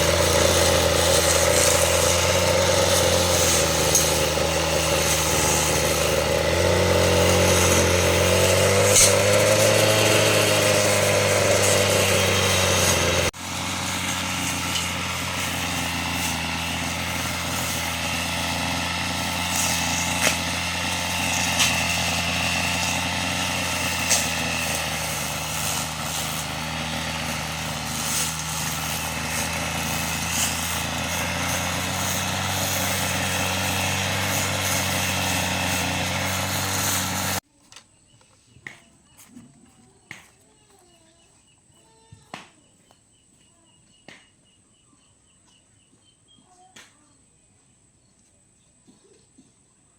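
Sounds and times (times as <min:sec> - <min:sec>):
engine running: 0:00.0 - 0:37.4.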